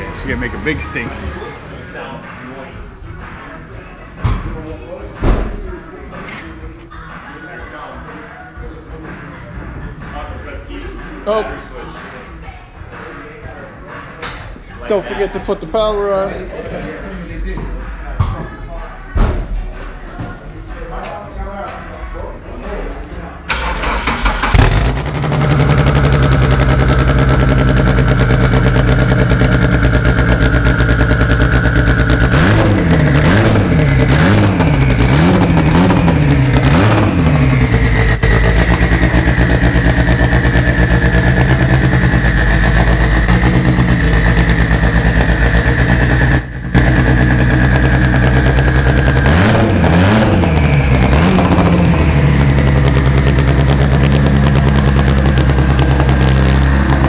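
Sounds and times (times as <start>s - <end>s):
turbocharged engine idling and revving: 0.0s - 1.7s, 23.5s - 57.0s
high turbo whine: 24.3s - 57.0s.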